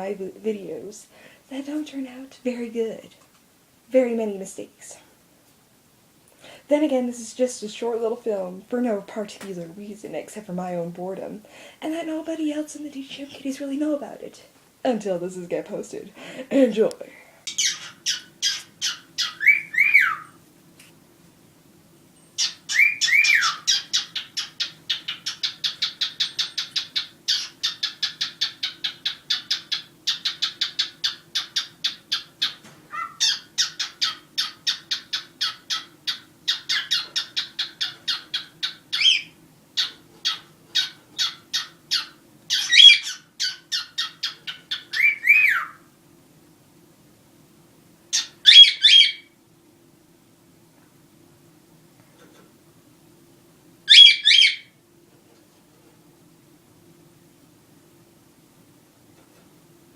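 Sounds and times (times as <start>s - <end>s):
cockatiels chirping: 17.5s - 20.4s, 22.4s - 45.8s, 48.1s - 49.3s, 53.9s - 54.7s
cockatiel whistles: 17.6s - 20.4s, 22.4s - 23.8s, 53.9s - 54.6s.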